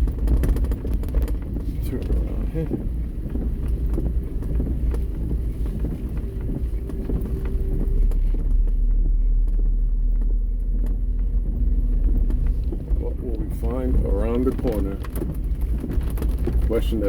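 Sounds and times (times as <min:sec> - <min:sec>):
engine and tyres rumbling: 0:00.0 - 0:17.0
faint engine drone: 0:00.0 - 0:17.0.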